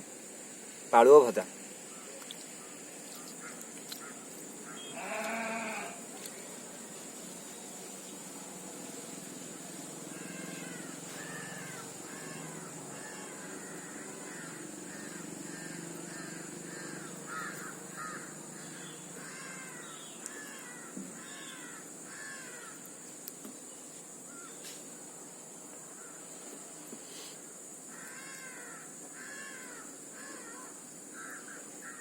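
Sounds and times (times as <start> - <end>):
crows cawing: 3.1 - 6.0, 10.1 - 22.9, 24.3 - 24.6, 27.9 - 32.0
faint clicks: 20.2 - 20.4.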